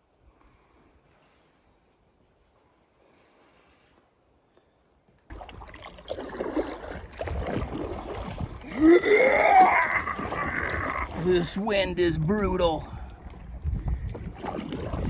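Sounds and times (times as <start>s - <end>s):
lake water splashing: 5.3s - 15.0s
wind buffeting microphone: 10.2s - 15.0s.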